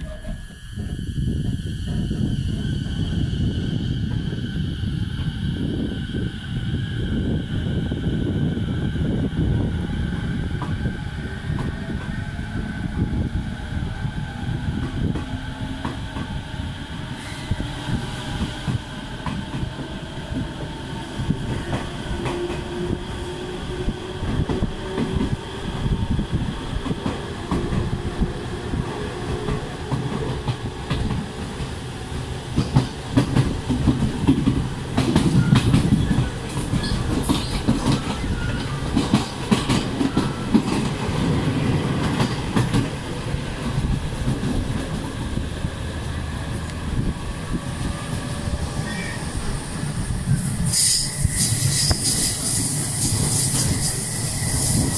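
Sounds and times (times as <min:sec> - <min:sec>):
train motor whine: 0:00.0 - 0:32.1, 0:32.7 - 0:54.9
train wheels clickety-clack: 0:10.1 - 0:10.9, 0:11.5 - 0:12.2, 0:14.8 - 0:16.4, 0:17.2 - 0:23.1, 0:23.9 - 0:26.0, 0:26.8 - 0:31.8, 0:32.5 - 0:45.4, 0:50.3 - 0:54.9.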